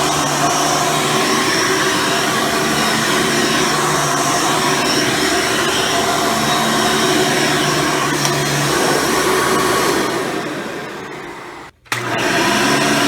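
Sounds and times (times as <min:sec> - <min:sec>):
upright vacuum cleaner running: 0:00.0 - 0:13.0.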